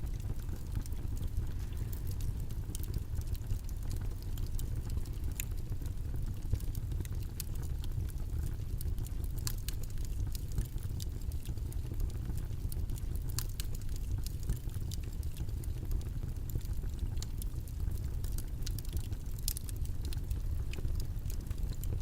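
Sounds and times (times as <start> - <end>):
faint crackles and ticks: 0.0 - 22.0.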